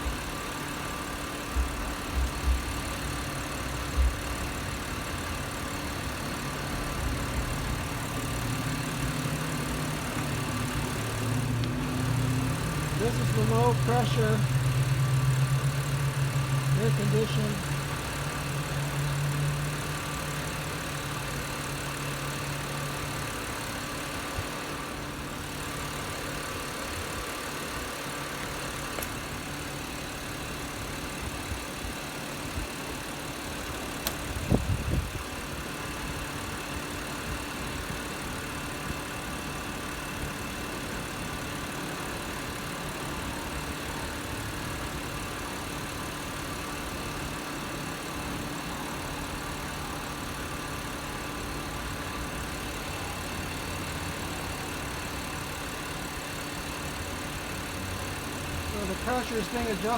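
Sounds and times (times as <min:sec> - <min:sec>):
car engine idling: 0:00.0 - 0:59.9
air conditioning running: 0:01.6 - 0:19.7, 0:58.5 - 0:59.9.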